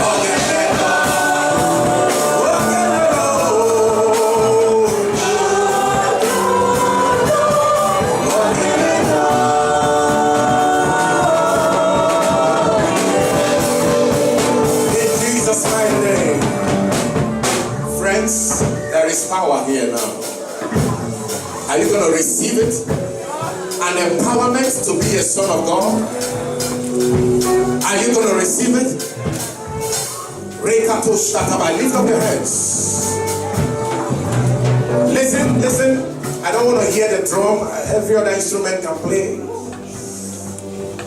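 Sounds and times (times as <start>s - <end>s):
voices singing: 0.0s - 18.9s
band playing: 0.0s - 41.0s
steady drum beat: 0.0s - 41.0s.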